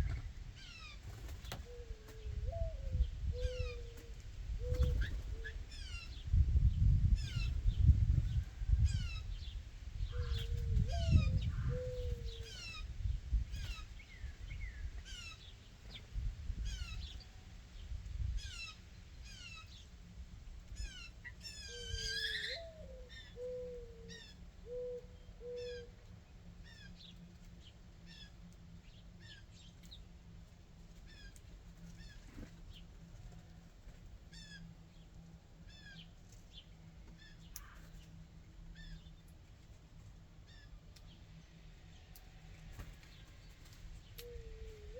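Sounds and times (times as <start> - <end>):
low cooing call: 0.0 - 6.2, 10.1 - 12.9, 20.8 - 26.0, 44.1 - 44.9.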